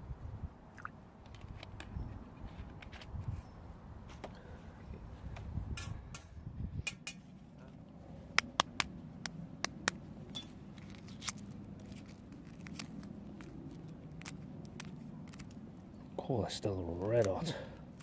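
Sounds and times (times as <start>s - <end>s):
rustling and scraping: 1.3s - 3.4s, 10.3s - 15.6s.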